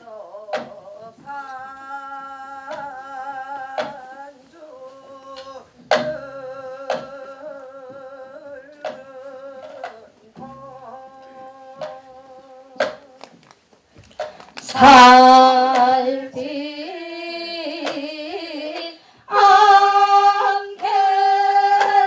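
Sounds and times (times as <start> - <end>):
folk singing with vibrato: 0.0 - 22.0.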